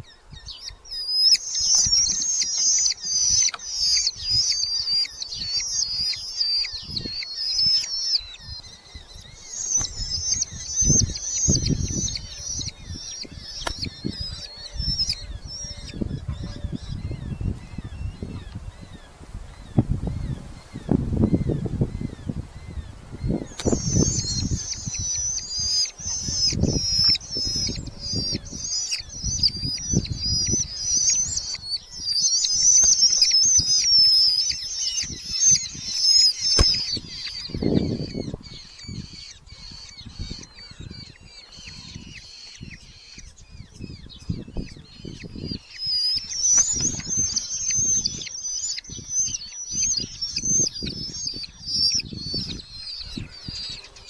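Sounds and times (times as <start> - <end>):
falcon chicks chattering: 0.0 - 54.0
birds thumping and rustling: 1.2 - 16.8, 23.2 - 38.7, 45.8 - 54.0.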